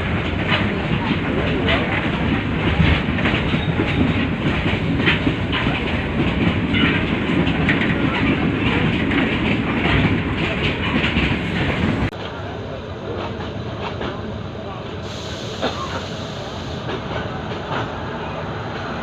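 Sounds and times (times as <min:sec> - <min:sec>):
train wheels clacking: 0:00.0 - 0:12.2
train rumbling: 0:00.0 - 0:19.0.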